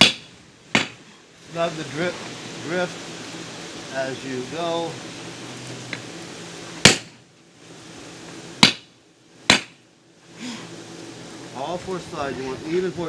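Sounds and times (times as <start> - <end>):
hammer blows on hot steel: 8.6 - 8.9, 9.5 - 9.8.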